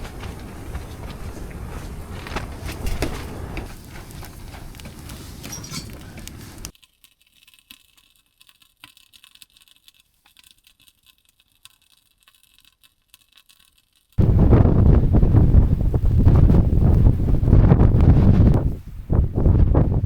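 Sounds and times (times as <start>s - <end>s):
rough rushing noise: 0.0s - 6.7s, 14.2s - 20.0s
crackles and clicks: 0.0s - 14.6s.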